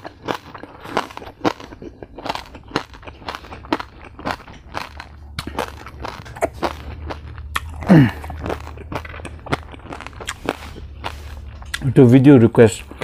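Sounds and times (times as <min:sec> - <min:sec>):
crunching crispy pork skin: 0:00.0 - 0:12.8
person humming mmm: 0:07.5 - 0:08.8.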